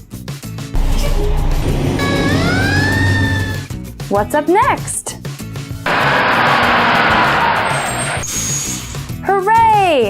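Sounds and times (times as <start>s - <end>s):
low engine rumble: 0.8s - 3.7s
siren-like wail: 0.8s - 3.7s, 5.9s - 8.3s.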